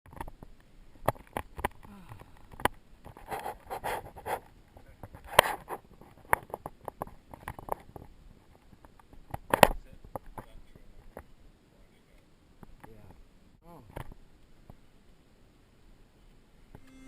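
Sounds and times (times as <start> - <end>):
rustling: 0.1 - 11.4
sharp clicks and knocks: 5.0 - 11.3.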